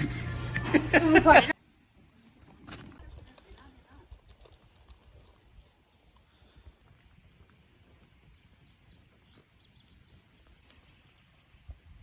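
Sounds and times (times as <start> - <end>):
small birds chirping: 4.6 - 11.6.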